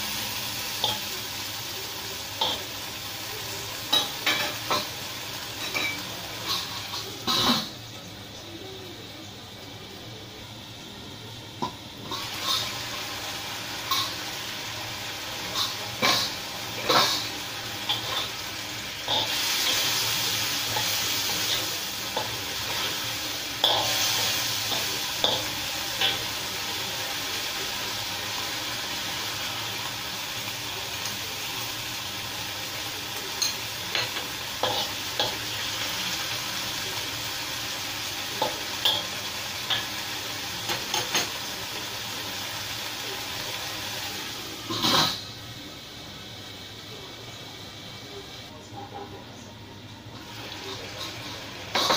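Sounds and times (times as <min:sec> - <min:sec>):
beans sizzling in a wok: 0:00.0 - 0:51.9
spatula scraping wok: 0:05.5 - 0:07.8, 0:12.0 - 0:14.4, 0:44.6 - 0:45.4.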